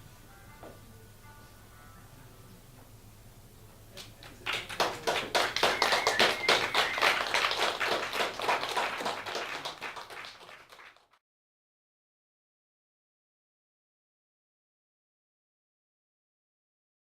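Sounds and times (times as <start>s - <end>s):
music: 0.0s - 3.6s
audience applauding: 4.0s - 11.2s.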